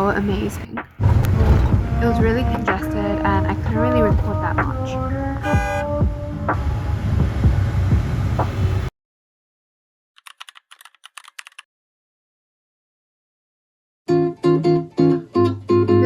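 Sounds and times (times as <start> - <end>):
road traffic rumble: 0.0 - 8.9
quick irregular clicks: 10.2 - 11.7.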